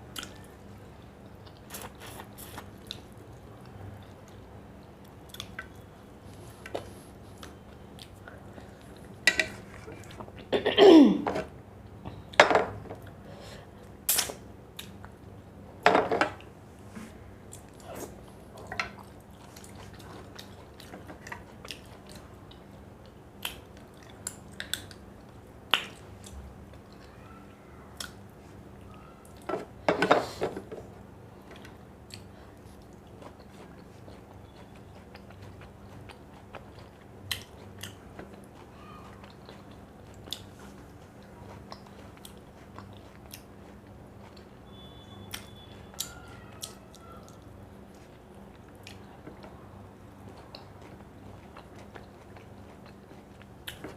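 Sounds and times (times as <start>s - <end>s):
chewing and biting food: 31.4s - 49.5s, 50.1s - 53.9s.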